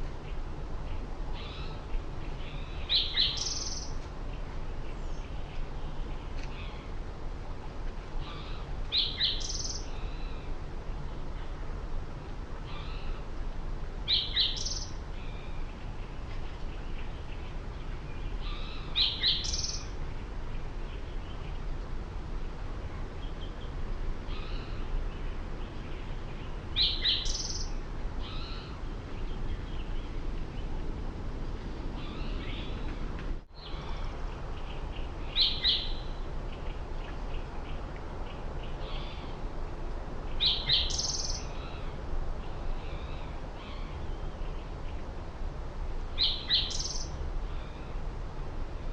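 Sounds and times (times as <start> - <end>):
low background noise: 0.0 - 48.9
faint bird calls: 0.9 - 4.0, 8.2 - 10.6, 12.6 - 13.3
bird chirping: 1.4 - 4.0, 8.2 - 10.4, 14.1 - 15.5, 16.8 - 20.0, 24.3 - 30.7, 33.6 - 37.5, 40.3 - 41.9, 46.2 - 47.1.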